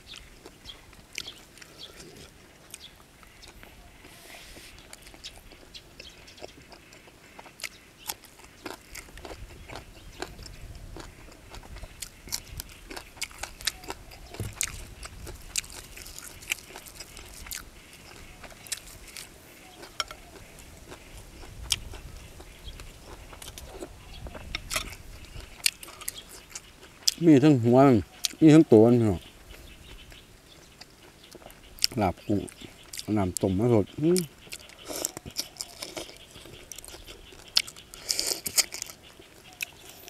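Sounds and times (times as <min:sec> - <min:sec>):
person chewing and crunching food: 0:00.0 - 0:27.2, 0:28.0 - 0:28.4, 0:29.1 - 0:33.5, 0:34.2 - 0:40.0.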